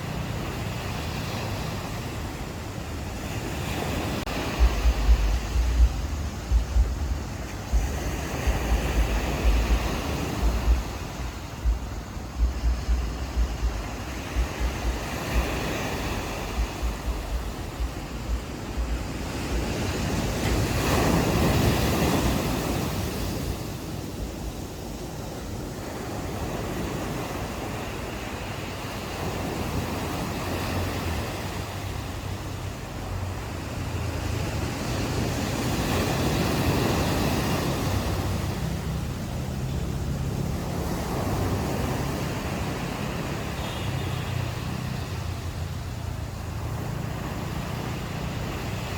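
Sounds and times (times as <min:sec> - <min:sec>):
ocean waves breaking on shore: 0:00.0 - 0:48.9
wind buffeting microphone: 0:00.0 - 0:48.9
low steady hum: 0:04.5 - 0:15.5, 0:16.2 - 0:19.7.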